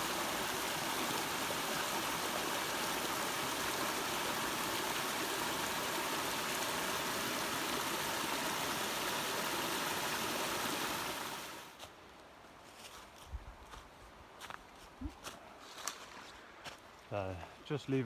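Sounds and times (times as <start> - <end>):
water rushing over waterfall: 0.0 - 11.7.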